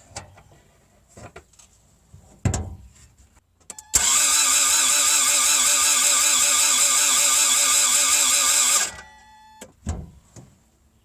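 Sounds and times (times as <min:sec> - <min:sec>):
engine starter cranking: 0:03.9 - 0:09.1
thump: 0:09.8 - 0:10.6.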